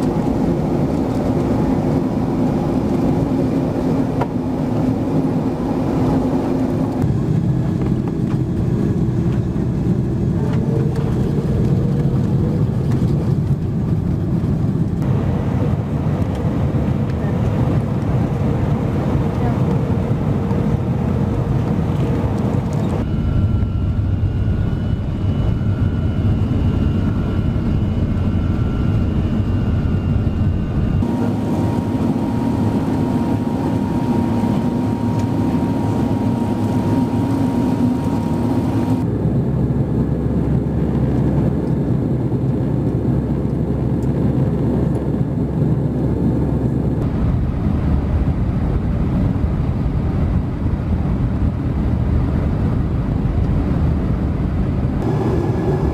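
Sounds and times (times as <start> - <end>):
jet engine cabin noise: 0.0 - 55.9
faint steady whine: 22.9 - 39.2.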